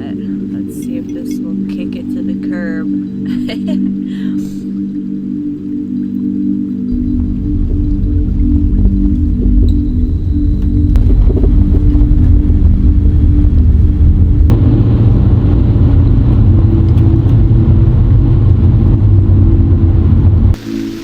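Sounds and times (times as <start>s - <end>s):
vehicle road and engine rumble: 6.9s - 20.6s.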